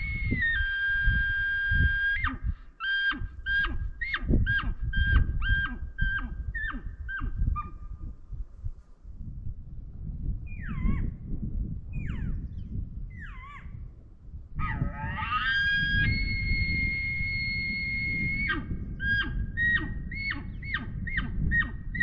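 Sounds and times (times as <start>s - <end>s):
elk call whistled note: 14.6s - 21.3s.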